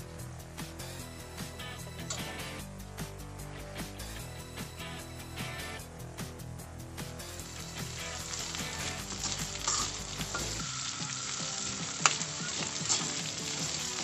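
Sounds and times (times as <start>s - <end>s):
food sizzling in oil: 7.2s - 14.0s
metal spoon scraping a pan: 9.2s - 10.6s.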